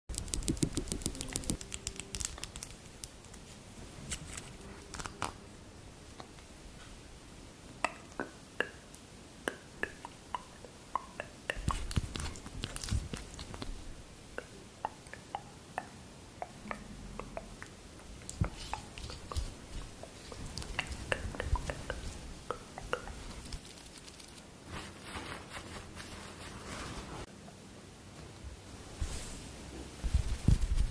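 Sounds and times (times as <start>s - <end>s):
skincare products clicking: 0.1s - 3.2s.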